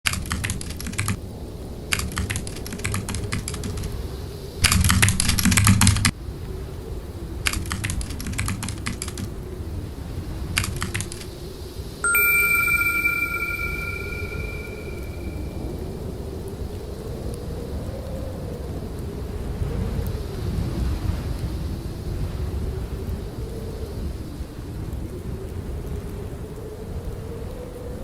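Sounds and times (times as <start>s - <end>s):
computer keyboard typing: 2.1s - 3.9s, 7.8s - 9.3s
bell-like chime ringing: 12.0s - 15.7s.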